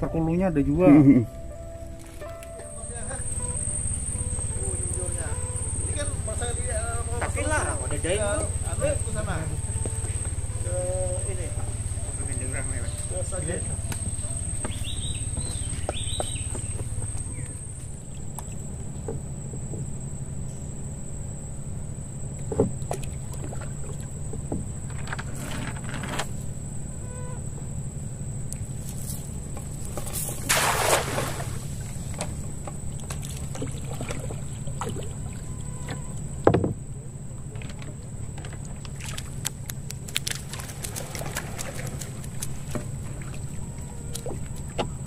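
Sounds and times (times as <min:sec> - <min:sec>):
small boat motor droning: 0:00.0 - 0:45.0
rush of water: 0:30.4 - 0:31.9.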